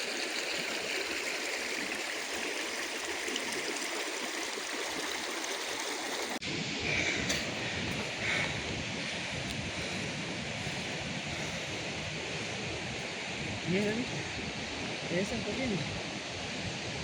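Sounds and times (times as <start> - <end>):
river water tumbling over falls: 0.0 - 17.0
wind buffeting microphone: 6.4 - 17.0.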